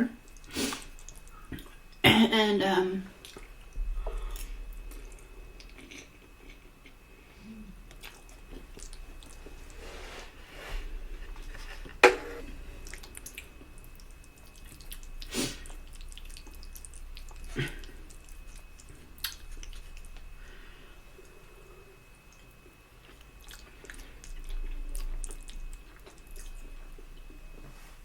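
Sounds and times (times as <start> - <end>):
wet chewing mouth sounds: 7.7 - 9.8, 12.8 - 20.3, 22.3 - 27.6.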